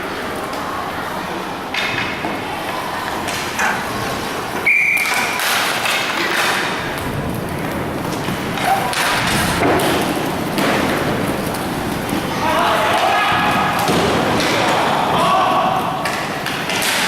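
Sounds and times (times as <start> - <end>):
rink background noise: 0.0 - 17.0
hockey sticks and puck knocking: 3.2 - 7.0, 8.1 - 17.0.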